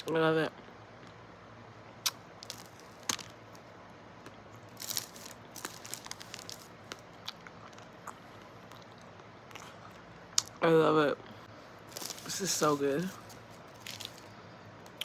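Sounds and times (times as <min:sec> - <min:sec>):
close chewing and crunching: 0:02.0 - 0:03.6, 0:04.2 - 0:10.6, 0:11.6 - 0:15.0.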